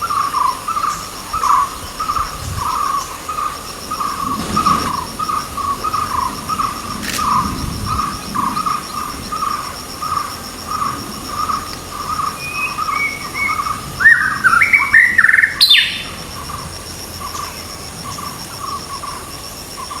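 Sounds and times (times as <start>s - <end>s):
insect trill: 0.0s - 20.0s
birdsong whistled phrases: 12.4s - 16.0s.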